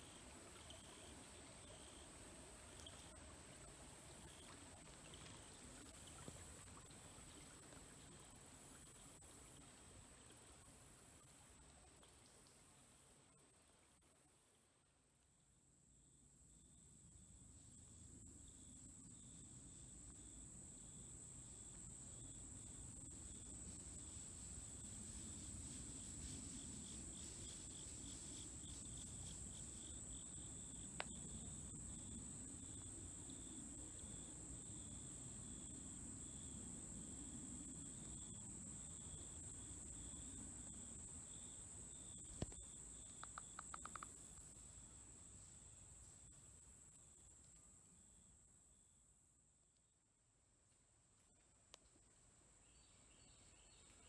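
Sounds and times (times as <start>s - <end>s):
pulsing insect chorus: 17.8s - 47.6s
sharp clicks: 43.2s - 44.2s.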